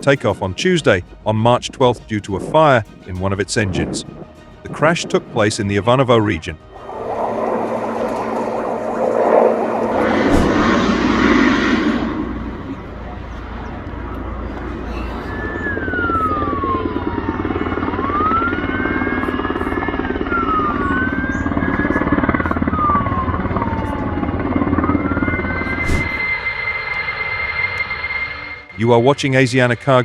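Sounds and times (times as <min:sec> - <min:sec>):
emergency siren wailing: 0:06.3 - 0:28.8
rumbling engine: 0:06.6 - 0:16.7, 0:22.2 - 0:26.9.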